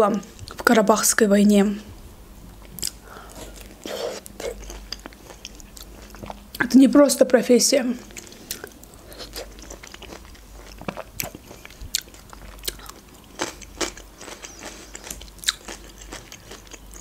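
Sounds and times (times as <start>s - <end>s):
chewing juicy fruit: 2.6s - 6.7s, 8.0s - 17.0s.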